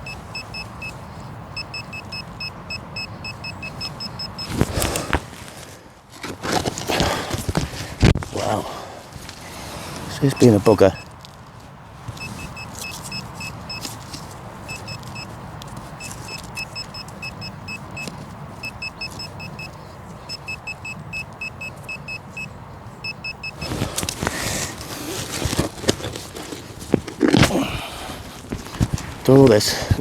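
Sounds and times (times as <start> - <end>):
high electronic beeps: 0.0 - 4.6, 12.2 - 13.9, 14.7 - 15.3, 16.0 - 23.7
hands digging through soil: 23.6 - 30.0.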